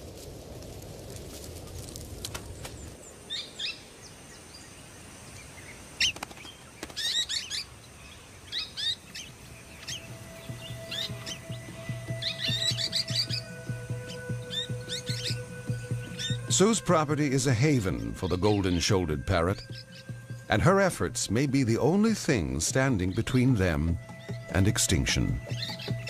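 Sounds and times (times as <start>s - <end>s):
fire cracks: 0.0s - 3.0s
bush fire rumble: 0.0s - 3.2s
birds chirping: 2.5s - 26.0s.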